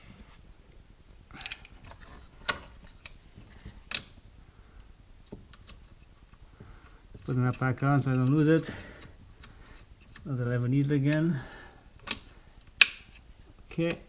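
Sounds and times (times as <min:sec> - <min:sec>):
metallic clicks and clinks: 0:01.3 - 0:02.6.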